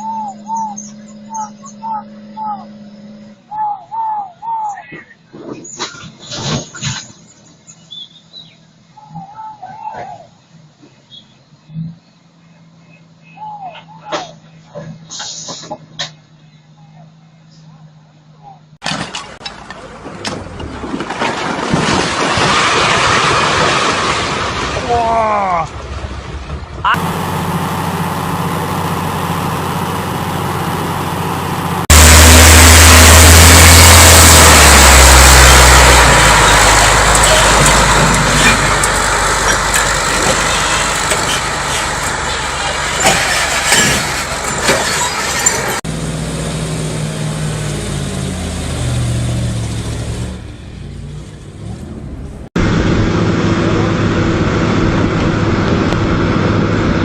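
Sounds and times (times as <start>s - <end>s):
heavy vehicle engines running: 0.0s - 7.8s, 8.6s - 57.0s
knocks and clanks: 36.2s - 45.8s.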